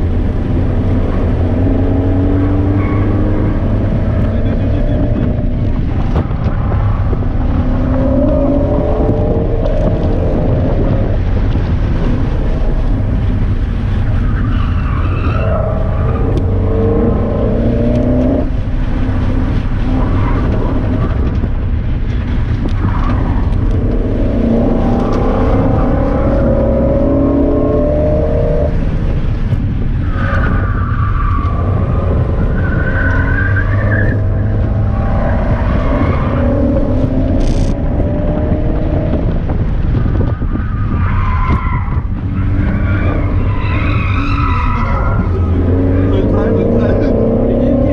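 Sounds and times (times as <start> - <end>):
car engine accelerating hard: 0.0 - 47.9
heavy low rumble: 0.0 - 47.9.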